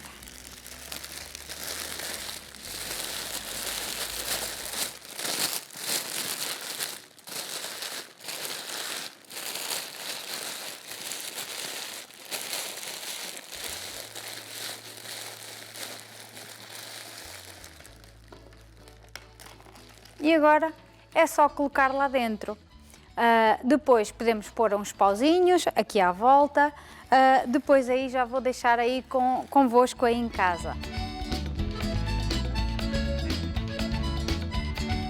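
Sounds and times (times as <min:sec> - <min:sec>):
paper being crumpled: 0:00.0 - 0:20.2.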